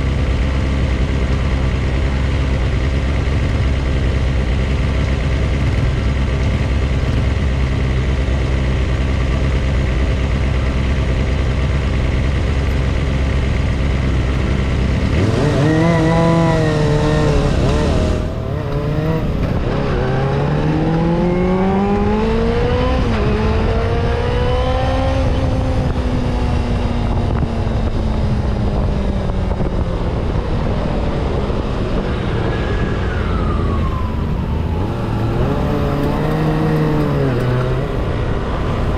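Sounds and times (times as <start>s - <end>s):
vehicle engine idling and accelerating: 0.0s - 38.9s
falling whine: 13.8s - 23.9s, 31.4s - 38.9s.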